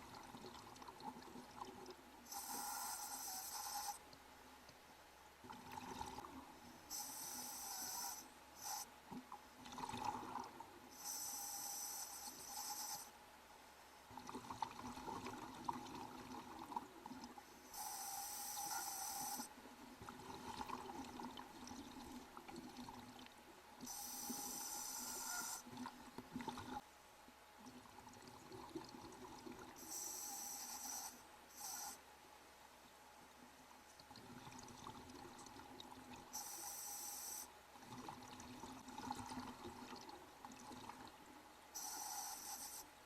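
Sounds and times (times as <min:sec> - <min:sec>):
regulator inhale hiss: 0:02.3 - 0:04.0, 0:06.9 - 0:08.9, 0:10.9 - 0:13.1, 0:17.6 - 0:19.5, 0:23.9 - 0:25.7, 0:29.8 - 0:32.0, 0:36.3 - 0:37.5, 0:41.8 - 0:42.9
exhaled air bubbling underwater: 0:05.4 - 0:08.2, 0:09.6 - 0:12.9, 0:14.1 - 0:26.8.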